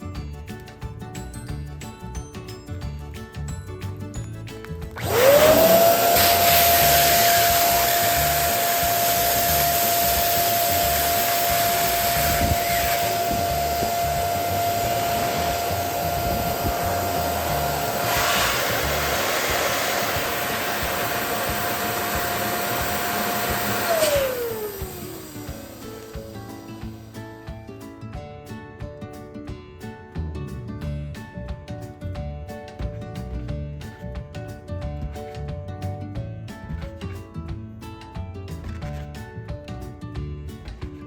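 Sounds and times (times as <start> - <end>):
background music: 0.0 - 41.0
balloon inflator motor whine: 4.9 - 27.0
rush of blown air: 5.0 - 25.8.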